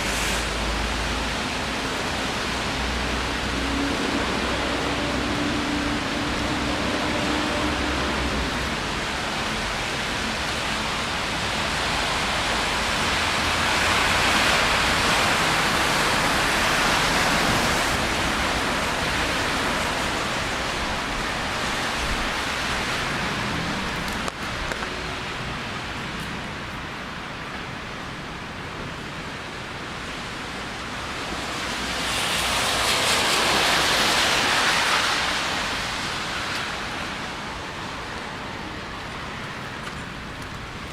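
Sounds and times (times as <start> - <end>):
rain on wet street: 0.0 - 40.9.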